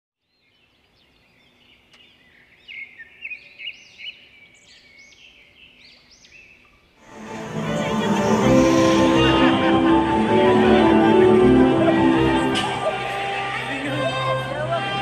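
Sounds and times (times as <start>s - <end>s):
birds chirping and twittering: 0.2s - 7.1s.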